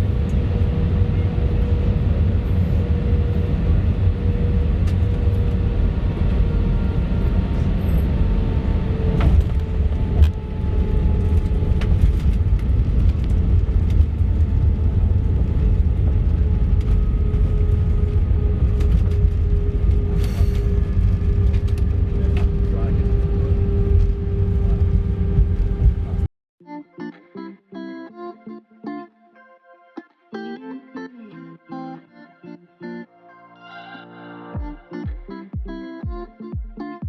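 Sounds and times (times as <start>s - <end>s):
faint whine: 0.0s - 26.3s
jet engines rumbling: 0.0s - 26.3s.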